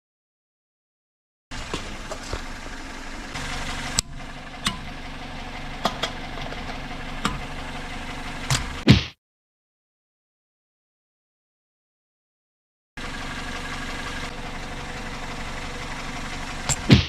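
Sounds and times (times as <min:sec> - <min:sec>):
car engine idling: 0:01.5 - 0:08.8, 0:13.0 - 0:17.0
sharp engine clicks: 0:01.5 - 0:08.8, 0:13.0 - 0:17.0.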